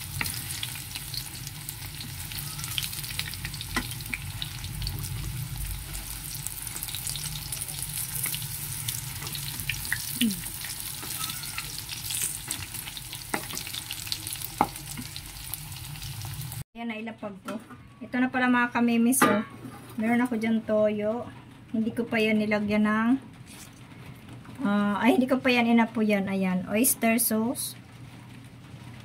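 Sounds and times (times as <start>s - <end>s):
chicken sizzling in hot oil: 0.0s - 16.6s.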